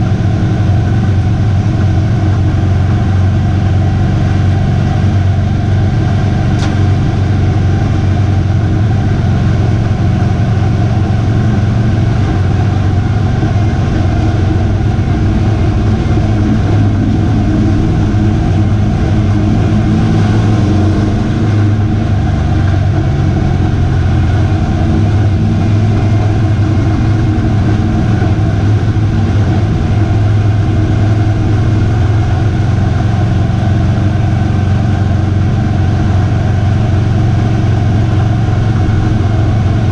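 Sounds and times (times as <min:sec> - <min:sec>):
race truck engine running loud: 0:00.0 - 0:39.9
sharp tick: 0:06.6 - 0:06.8.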